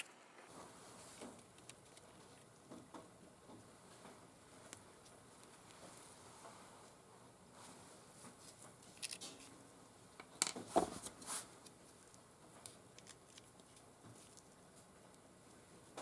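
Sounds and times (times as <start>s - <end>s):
small parts clicking and rustling: 1.2s - 2.5s, 8.8s - 9.5s, 11.6s - 14.6s.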